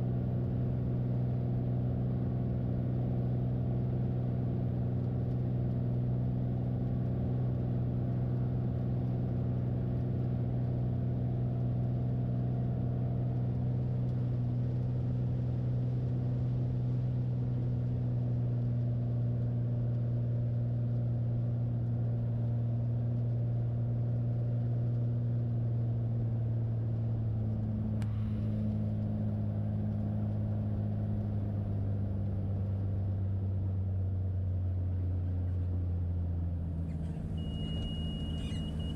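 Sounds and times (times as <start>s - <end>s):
airplane engine humming: 36.6s - 38.9s.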